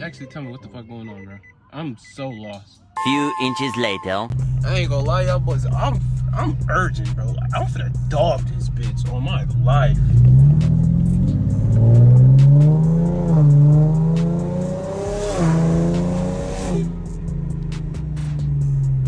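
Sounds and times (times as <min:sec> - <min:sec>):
car engine accelerating hard: 0:04.5 - 0:19.0.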